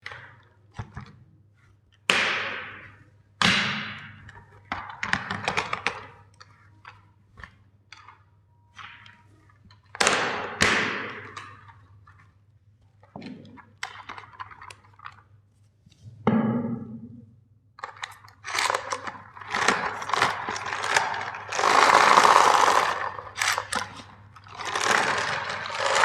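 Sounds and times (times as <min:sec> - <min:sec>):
clicks and taps of packaging: 0:01.9 - 0:11.8, 0:17.8 - 0:26.0.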